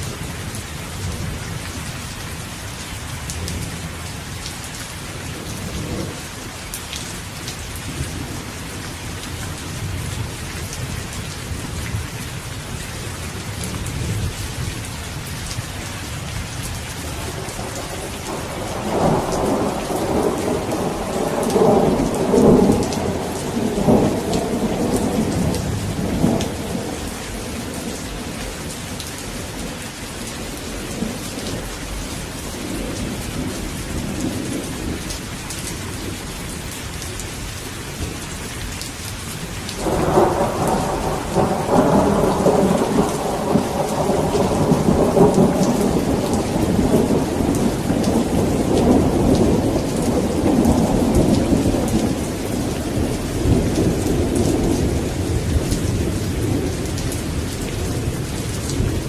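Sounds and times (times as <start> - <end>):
steady rainfall: 0.0 - 59.0
rolling thunder: 17.1 - 29.7, 39.8 - 59.0.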